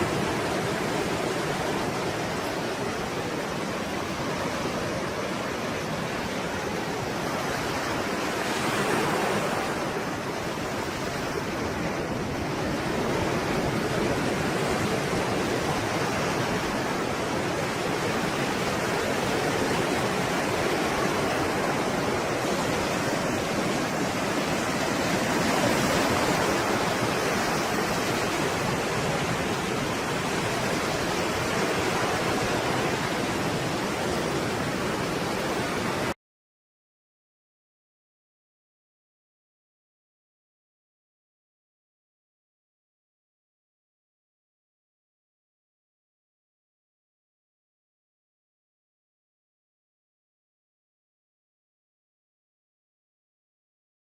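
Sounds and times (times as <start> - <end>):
waves breaking: 0.0 - 36.2.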